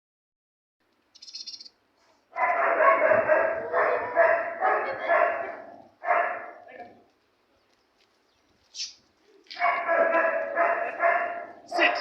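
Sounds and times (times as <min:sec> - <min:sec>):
dog howling: 0:02.5 - 0:06.4, 0:09.6 - 0:12.0.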